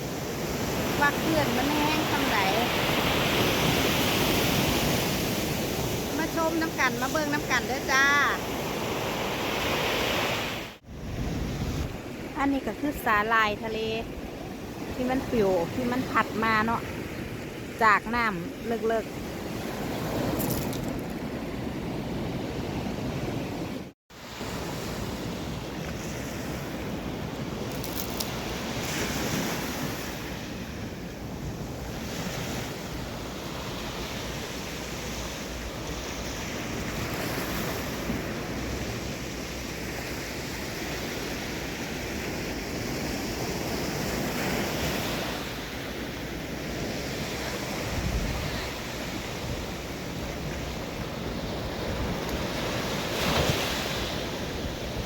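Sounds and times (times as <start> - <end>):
wind buffeting microphone: 10.8 - 12.4, 47.7 - 55.0.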